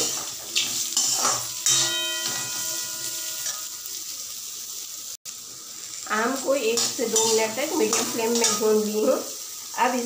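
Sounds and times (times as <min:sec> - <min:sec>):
mango frying in hot oil: 0:00.0 - 0:10.0
metal spatula knocking pan: 0:01.0 - 0:03.7.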